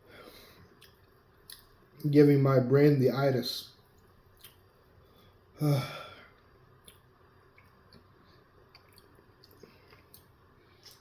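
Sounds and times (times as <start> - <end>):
chewing sandwich: 6.8 - 11.0.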